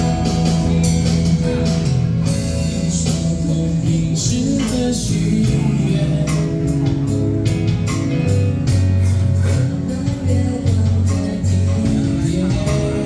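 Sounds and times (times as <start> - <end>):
guitar: 0.0 - 13.0
live band instrumental: 0.0 - 13.0
percussion: 0.0 - 13.0.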